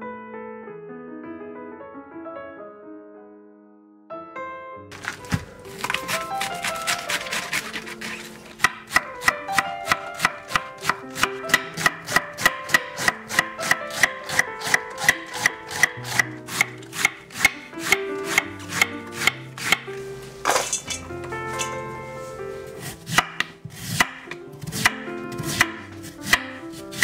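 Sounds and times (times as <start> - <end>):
cabbage swishing into metal bowl: 5.0 - 8.6
knife chopping cabbage on wood board: 5.0 - 19.9, 22.8 - 27.0.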